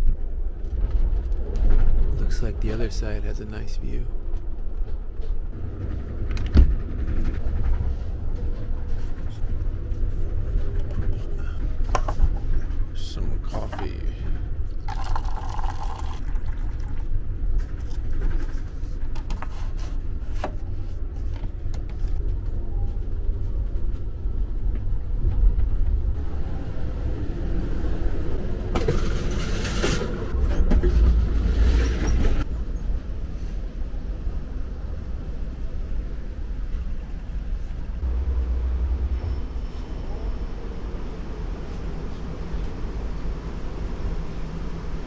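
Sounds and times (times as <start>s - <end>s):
train rumble inside car: 0.0s - 45.0s
rushing noise: 38.0s - 42.5s.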